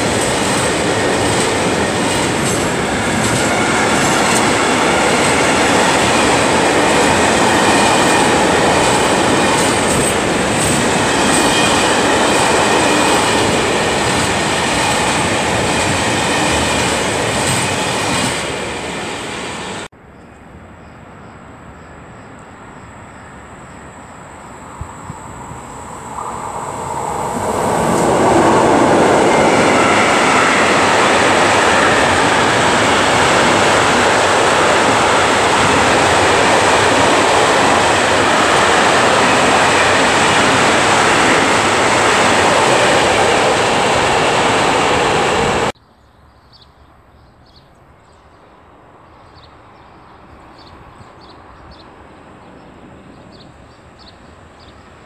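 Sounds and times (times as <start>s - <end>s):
distant train rumble: 0.0s - 19.9s, 21.2s - 45.8s
freight train rolling rumble: 0.0s - 19.9s, 23.3s - 45.8s.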